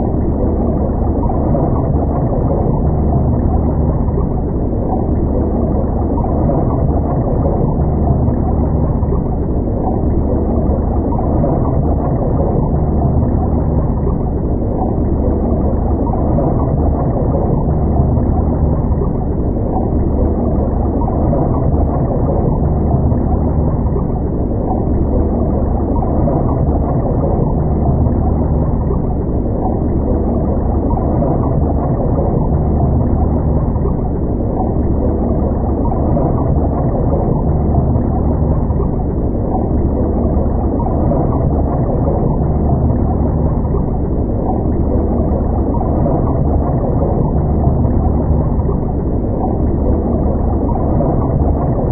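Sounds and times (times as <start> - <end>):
low hum: 0.0 - 51.9
muffled underwater rumble: 0.0 - 51.9.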